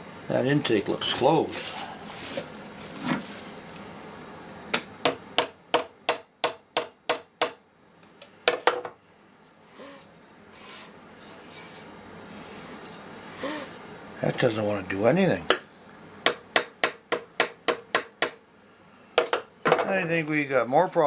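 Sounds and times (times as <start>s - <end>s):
lawn mower engine scraping strokes: 1.1s - 3.5s.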